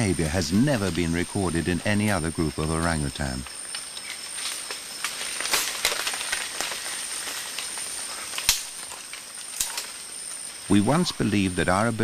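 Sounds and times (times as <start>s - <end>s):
high-pitched insect drone: 0.0s - 12.0s
sharp cracks: 3.7s - 10.2s.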